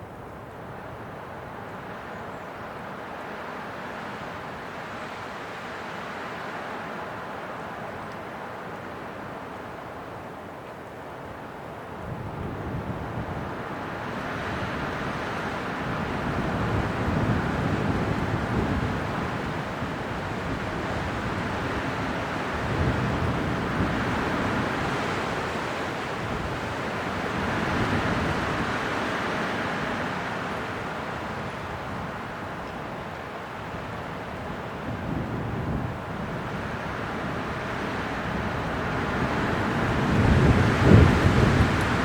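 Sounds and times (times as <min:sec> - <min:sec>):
strong gusty wind: 0:11.5 - 0:42.0.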